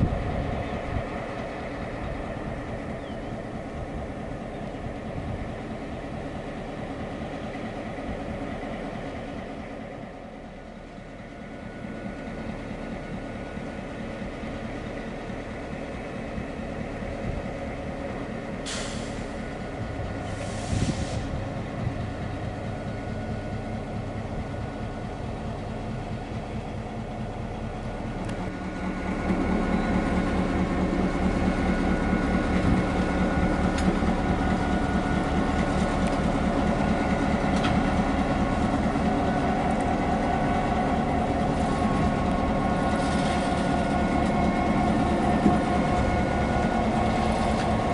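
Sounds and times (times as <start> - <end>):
diesel locomotive engine drone: 0.0 - 47.9
air hisses: 20.3 - 21.3.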